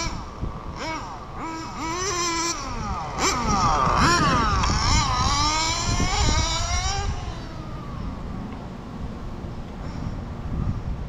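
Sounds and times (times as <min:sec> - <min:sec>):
rc car nitro engine whining: 0:00.0 - 0:08.4.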